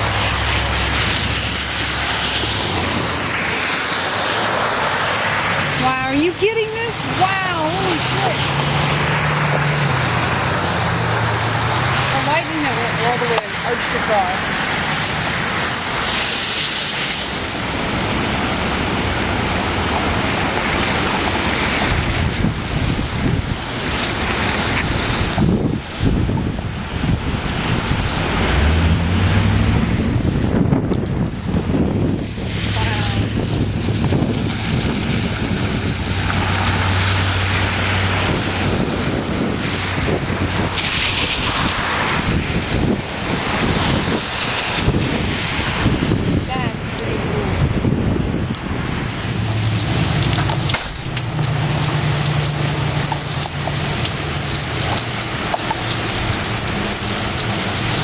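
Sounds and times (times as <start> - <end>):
heavy rain hissing: 0.0 - 58.0
storm wind buffeting microphone: 0.0 - 58.0
low thunder rumble: 17.3 - 58.0.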